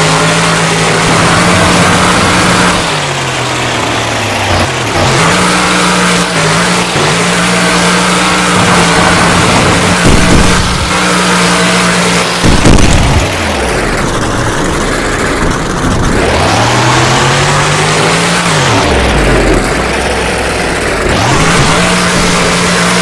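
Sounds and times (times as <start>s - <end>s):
monster truck engine revving: 0.0s - 23.0s
loud bang: 8.5s - 16.6s.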